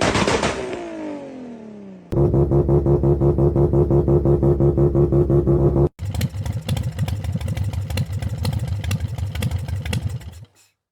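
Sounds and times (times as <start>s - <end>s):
engine ticking and clatter: 2.1s - 10.7s
motorcycle engine running unevenly: 2.2s - 10.6s.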